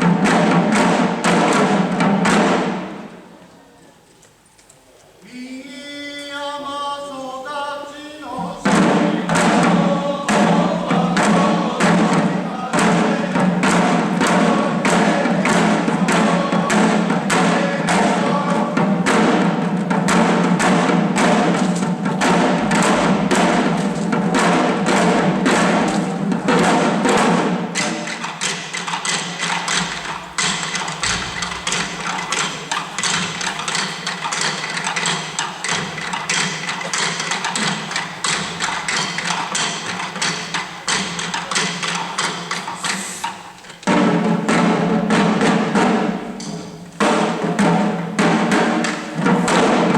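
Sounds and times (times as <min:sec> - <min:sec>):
drums beating steady rhythm: 0:00.0 - 0:03.4, 0:08.1 - 0:49.9
chanting voices: 0:05.1 - 0:35.6.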